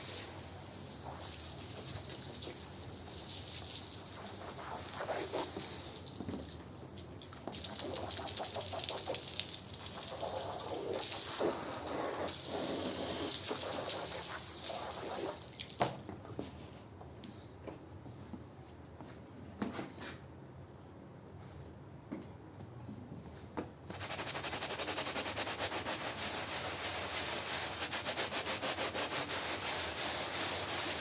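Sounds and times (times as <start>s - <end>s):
water gushing onto carpet: 0.0s - 15.9s, 26.2s - 31.0s.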